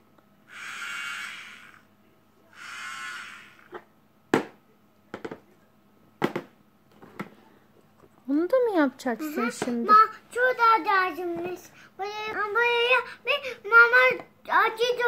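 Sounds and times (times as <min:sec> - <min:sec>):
toy part whirring: 0:00.5 - 0:01.9, 0:02.5 - 0:03.8.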